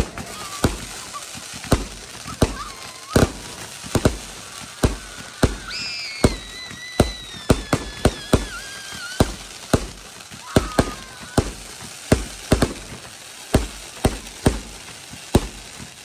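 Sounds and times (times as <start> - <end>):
long high falling whistle: 0.0 - 1.2, 2.3 - 9.5, 10.4 - 11.5
fireworks bangs: 0.0 - 16.0.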